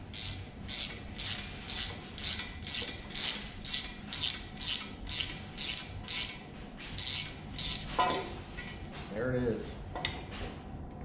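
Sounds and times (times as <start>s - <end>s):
ratchet wrench rasping: 0.1s - 6.4s, 7.0s - 7.9s.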